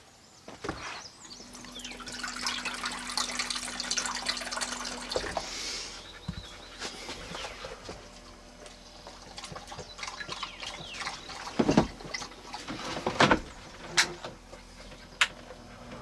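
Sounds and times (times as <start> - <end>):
dog lapping water from a bowl: 1.5 - 13.1.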